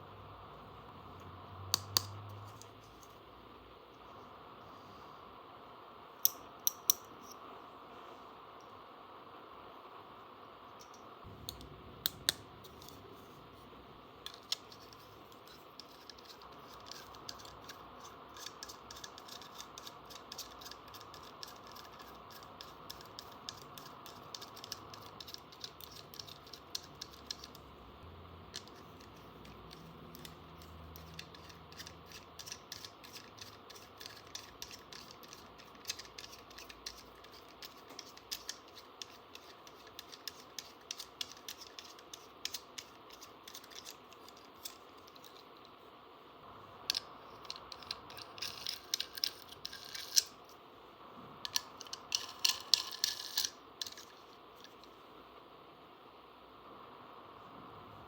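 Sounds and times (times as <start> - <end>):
plastic toy pieces clicking: 14.3 - 27.6, 28.5 - 45.4, 46.9 - 50.4, 51.5 - 54.8.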